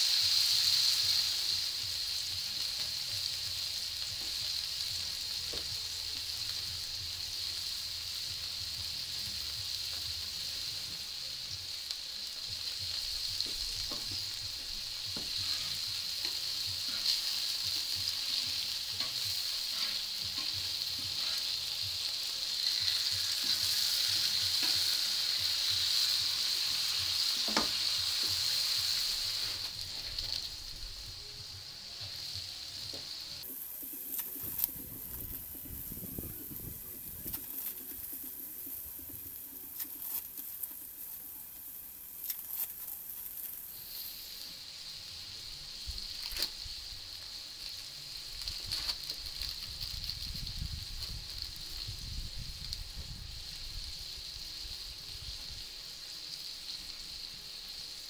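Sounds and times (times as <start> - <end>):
patties sizzling on griddle: 0.0 - 58.0
metal tongs tapping griddle: 18.9 - 21.4, 24.2 - 24.9.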